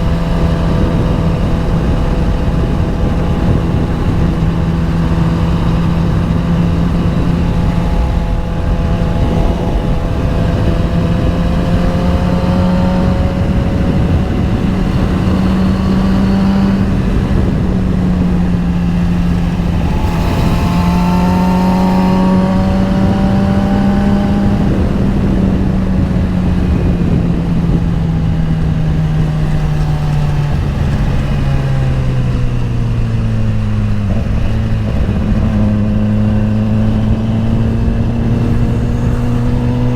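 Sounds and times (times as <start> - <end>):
motorcycle engine cruising: 0.0 - 39.9
wind on microphone: 0.0 - 39.9.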